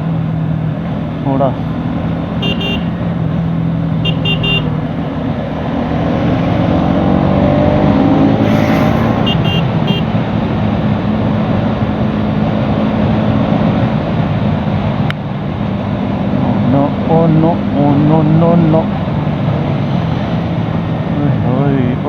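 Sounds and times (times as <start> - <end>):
wind and road noise: 0.0 - 22.0
short horn beeps: 8.4 - 10.1.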